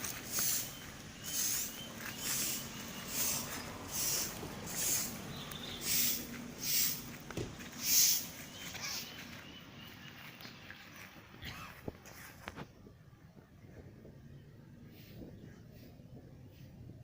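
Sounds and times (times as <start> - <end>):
harsh hissy bird calls: 0.0 - 10.5.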